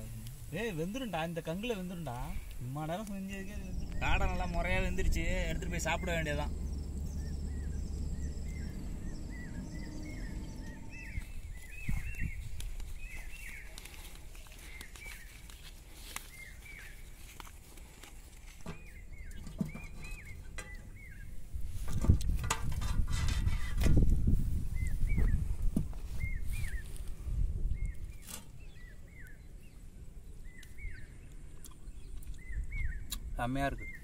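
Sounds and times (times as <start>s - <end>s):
small birds chirping: 0.0s - 34.0s
rustling and knocking on metal plate: 18.6s - 21.0s, 21.8s - 24.2s.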